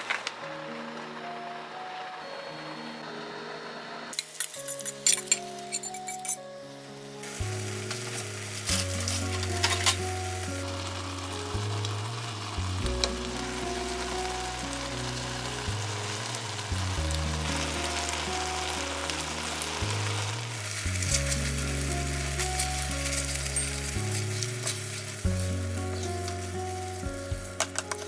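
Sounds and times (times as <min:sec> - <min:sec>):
food sizzling in a hot pan: 0:06.7 - 0:28.0.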